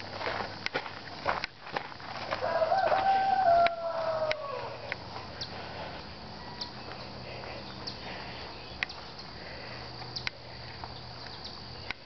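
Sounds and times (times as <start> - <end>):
long falling bird call: 2.4 - 5.6.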